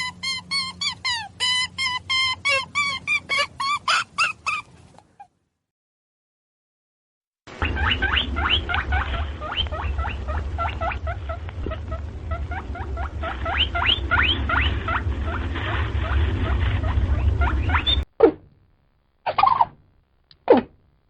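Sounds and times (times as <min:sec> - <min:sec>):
small animal squeaking: 0:00.0 - 0:05.3, 0:07.6 - 0:18.1, 0:19.2 - 0:19.8.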